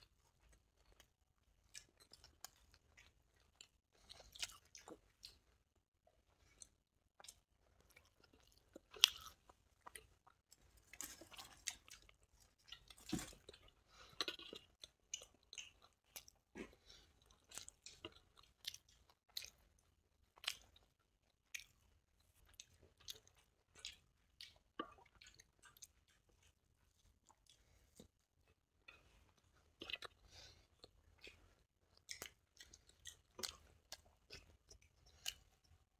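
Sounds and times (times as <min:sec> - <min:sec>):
crunchy bites and chewing: 0:06.6 - 0:19.7.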